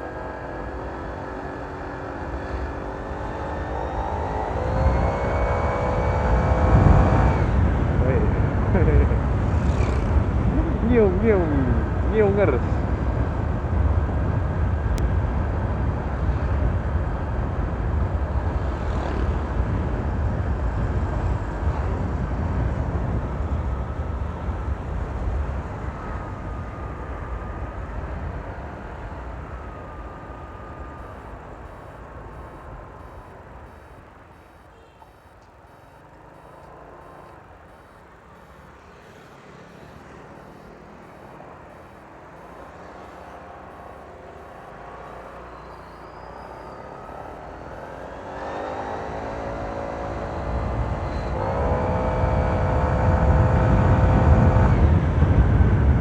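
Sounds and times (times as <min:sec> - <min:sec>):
scooter riding rumble: 0:00.0 - 0:56.0
thin turbo-like whistle: 0:30.8 - 0:48.1.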